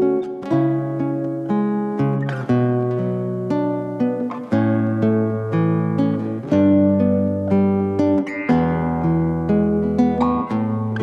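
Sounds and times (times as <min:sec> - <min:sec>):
plucked acoustic guitar: 0:00.0 - 0:11.0.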